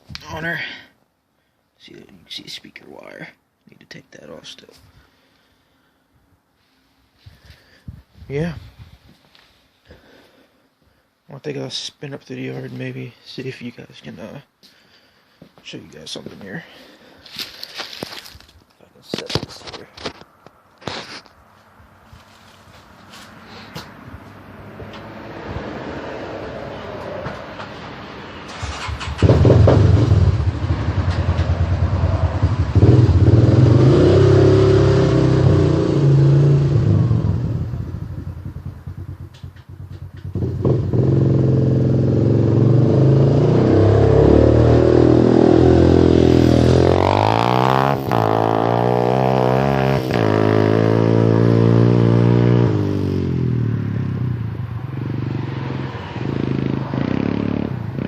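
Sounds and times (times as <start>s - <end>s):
atv engine revving: 28.5s - 58.0s.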